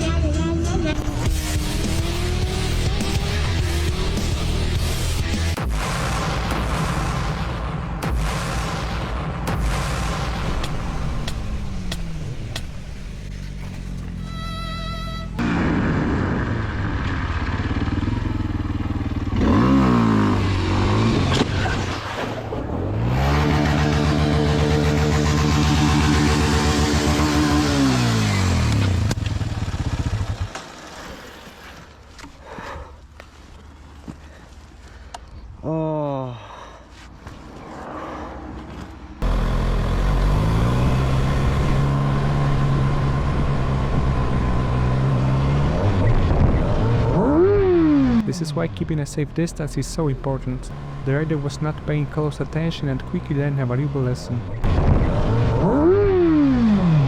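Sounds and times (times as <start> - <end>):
motorcycle engine revving: 0.8 - 7.0, 10.4 - 31.8, 39.2 - 57.0
road and wind noise: 10.5 - 35.6, 36.7 - 57.0.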